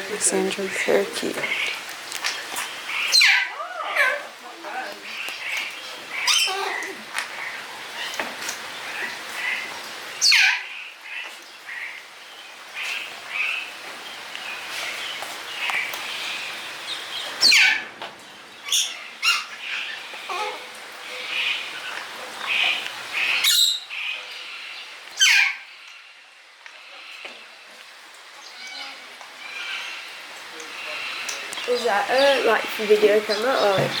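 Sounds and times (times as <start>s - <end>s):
parrots chirping: 2.9s - 4.2s, 5.1s - 6.9s, 10.2s - 10.7s, 16.9s - 17.9s, 18.6s - 24.2s, 25.2s - 25.7s.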